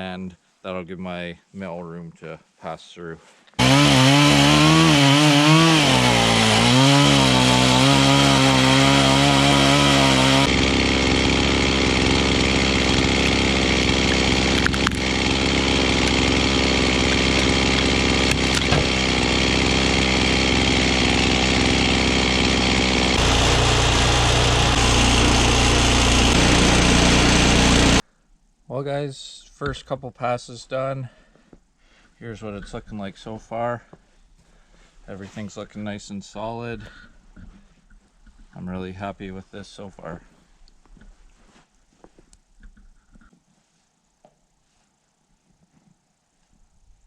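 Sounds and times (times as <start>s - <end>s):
chainsaw cutting log: 3.6s - 28.0s.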